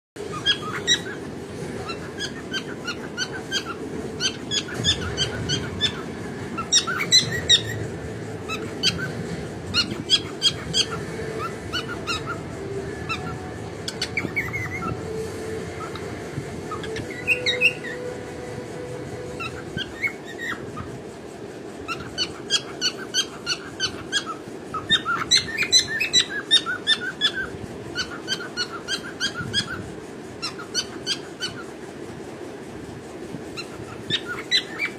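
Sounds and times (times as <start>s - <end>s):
cockatiel chirping: 0.2s - 18.2s, 19.2s - 20.9s, 21.9s - 29.8s, 30.4s - 31.7s, 33.6s - 34.9s.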